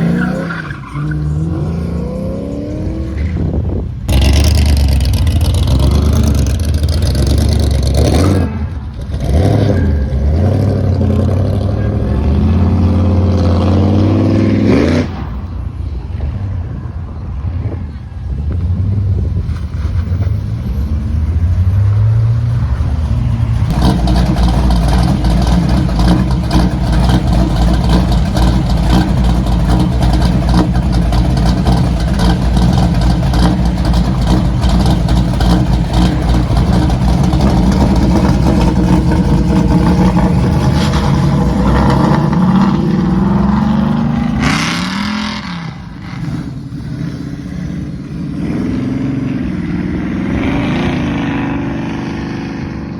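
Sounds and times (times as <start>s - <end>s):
car engine starting rough: 0.0s - 15.2s, 23.5s - 52.9s
car engines passing: 0.0s - 52.9s.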